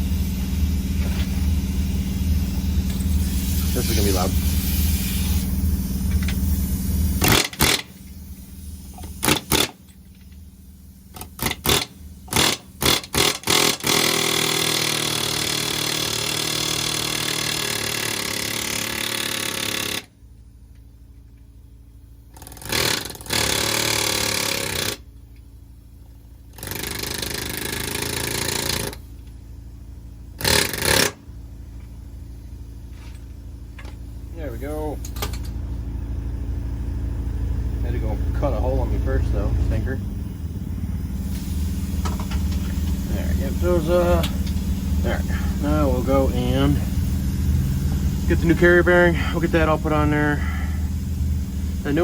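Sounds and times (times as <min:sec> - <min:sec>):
pneumatic air hammer bursts: 0:00.0 - 0:10.3, 0:11.0 - 0:20.2, 0:22.3 - 0:25.1, 0:26.5 - 0:29.3, 0:30.3 - 0:31.3, 0:41.2 - 0:52.0
steady low hum: 0:00.0 - 0:52.0.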